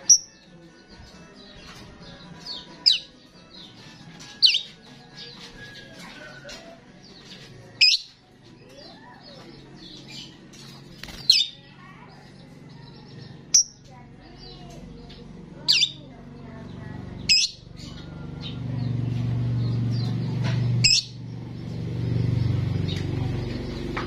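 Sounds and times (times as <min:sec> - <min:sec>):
starling chattering: 0:08.8 - 0:24.0.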